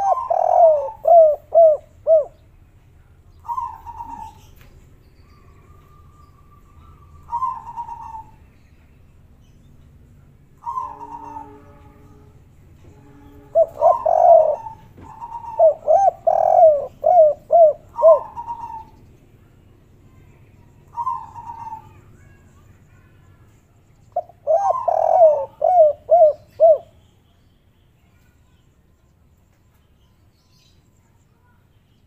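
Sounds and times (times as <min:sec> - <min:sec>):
doves cooing: 0:00.0 - 0:02.4, 0:03.4 - 0:04.7, 0:05.4 - 0:08.5, 0:10.5 - 0:12.3, 0:13.0 - 0:19.1, 0:20.8 - 0:22.1, 0:24.2 - 0:26.9.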